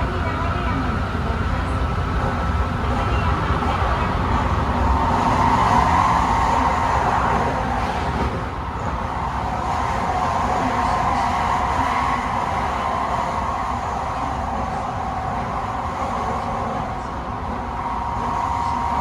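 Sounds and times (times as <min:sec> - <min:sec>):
train running rumble: 0:00.0 - 0:19.0.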